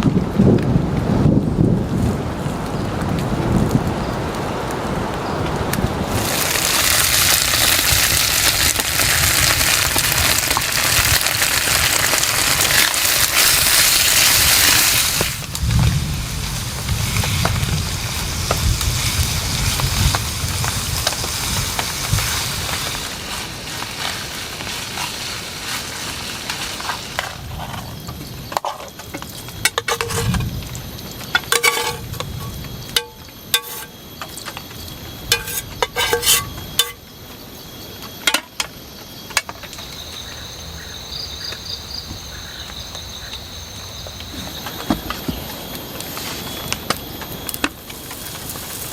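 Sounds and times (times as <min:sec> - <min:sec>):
steady hiss of rain or frying: 0:00.0 - 0:48.9
insects trilling and chirping: 0:02.3 - 0:48.9
sharp ringing clinks and knocks: 0:35.2 - 0:37.0.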